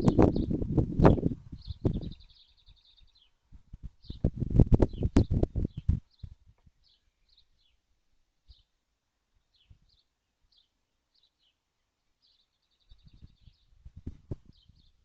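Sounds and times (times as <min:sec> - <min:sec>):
high bird chirps: 0:01.5 - 0:03.4.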